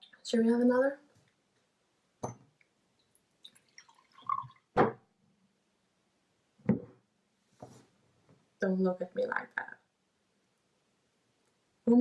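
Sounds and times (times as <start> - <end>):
glass set down on table: 2.2 - 2.4
drink pouring into a glass: 3.0 - 4.7.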